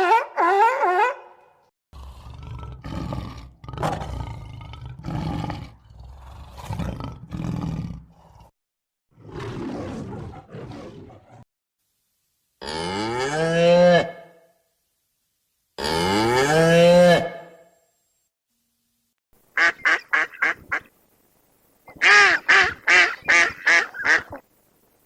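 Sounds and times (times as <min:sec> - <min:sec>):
big cat roaring and growling: 0:02.0 - 0:08.6, 0:09.2 - 0:11.4.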